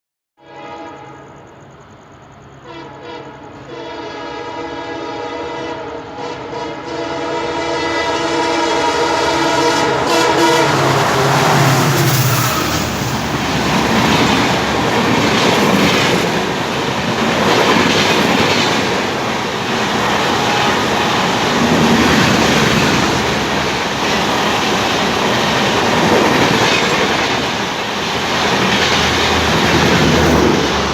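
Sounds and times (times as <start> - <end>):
train horn blast: 0.4 - 1.6, 2.5 - 14.2
train rushing past: 0.6 - 30.9
train wheels clattering on rails: 10.6 - 30.9.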